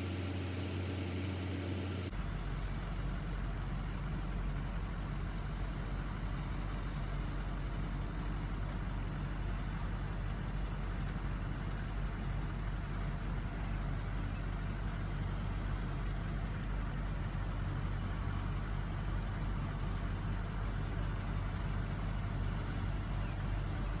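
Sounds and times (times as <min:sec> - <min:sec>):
vehicle engine humming: 0:00.0 - 0:02.4.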